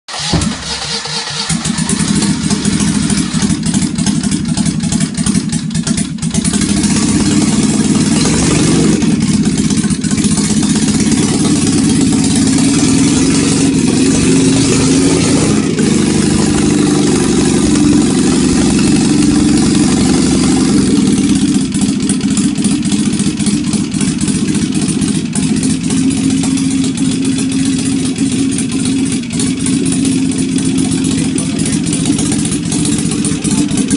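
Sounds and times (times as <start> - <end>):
car engine starting and running: 0.0 - 33.9.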